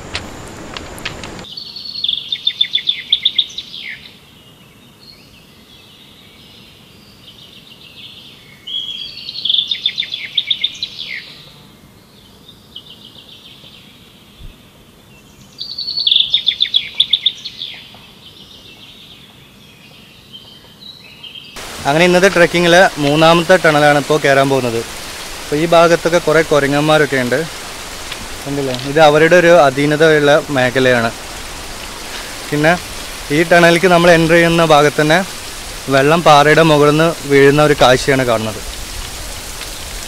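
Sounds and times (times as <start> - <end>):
soft bird calls: 15.2 - 38.6.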